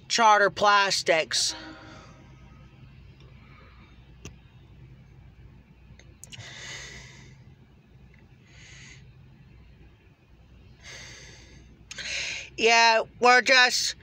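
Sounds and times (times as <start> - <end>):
steady low hum: 0.0 - 14.0
soft breaths: 1.5 - 4.2, 6.2 - 12.6.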